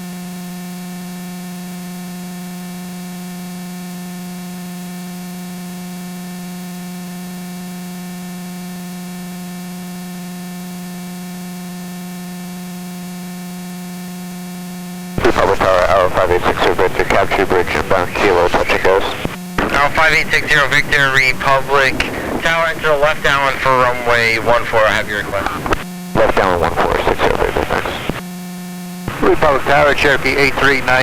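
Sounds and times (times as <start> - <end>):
electrical hum: 14.3 - 31.0
radio hiss: 15.2 - 28.2, 28.9 - 31.0.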